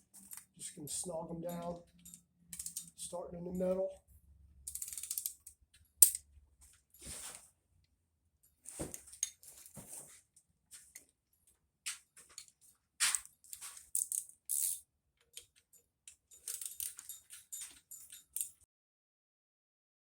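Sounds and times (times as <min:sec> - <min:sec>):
wrench clinking on metal: 0:00.2 - 0:03.7, 0:04.7 - 0:06.3, 0:12.4 - 0:18.6.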